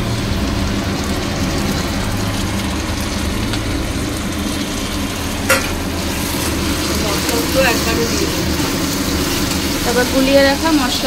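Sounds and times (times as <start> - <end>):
paste sizzling in hot oil: 0.0 - 11.0
knock against a pan: 5.5 - 5.8.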